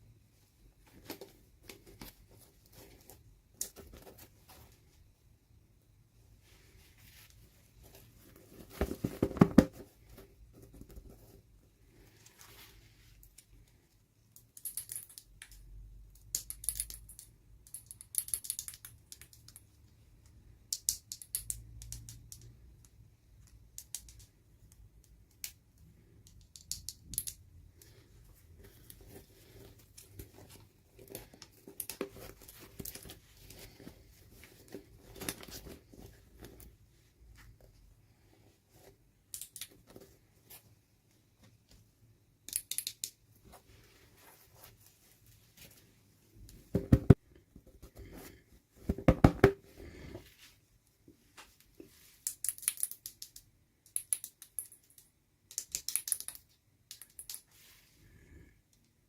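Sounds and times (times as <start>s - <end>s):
small clicks and taps: 14.3s - 27.9s.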